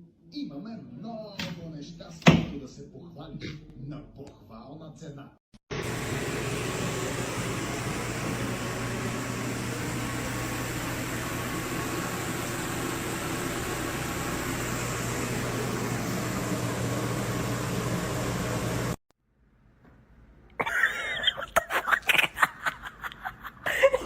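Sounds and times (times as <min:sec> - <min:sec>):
machine whirring: 0:05.7 - 0:19.0.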